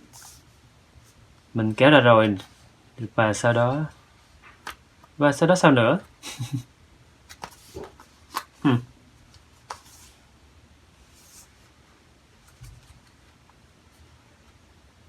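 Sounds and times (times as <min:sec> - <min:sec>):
cardboard rubbing and handling: 0:07.3 - 0:08.6, 0:09.6 - 0:10.2.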